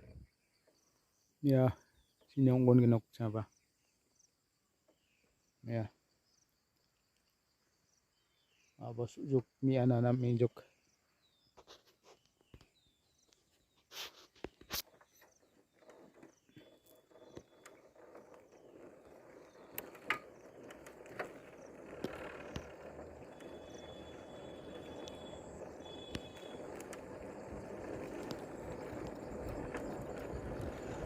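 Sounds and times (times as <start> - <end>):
steady rustling: 14.0 - 31.0
faint knocks and clicks: 14.4 - 31.0.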